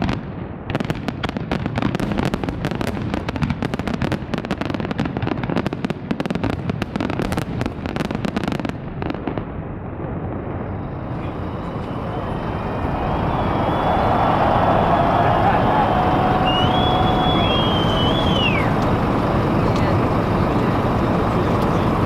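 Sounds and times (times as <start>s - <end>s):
fireworks bangs and crackles: 0.0s - 22.0s
steady rushing noise: 9.7s - 22.0s.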